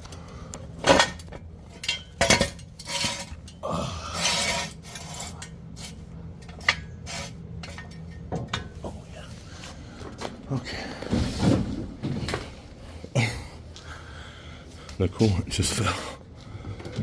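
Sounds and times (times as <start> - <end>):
metal scraping: 1.8 - 8.3.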